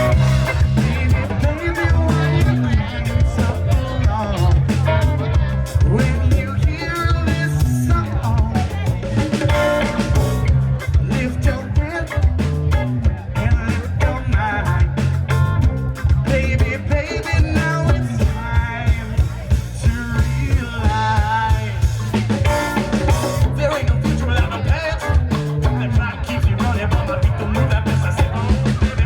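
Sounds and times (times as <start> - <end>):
live band playing upbeat song: 0.0 - 29.0.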